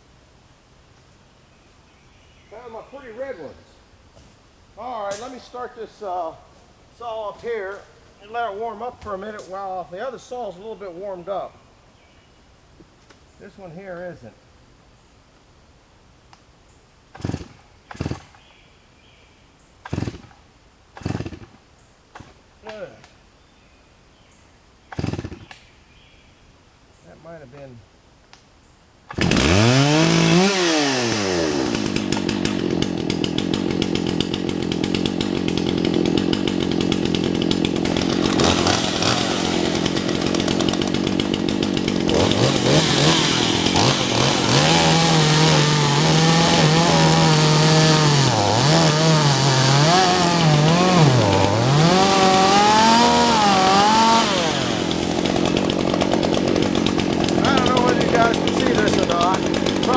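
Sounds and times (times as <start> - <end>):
two-stroke chainsaw revving: 17.1 - 18.4, 19.8 - 20.4, 21.0 - 21.6, 24.9 - 25.5, 29.1 - 59.9.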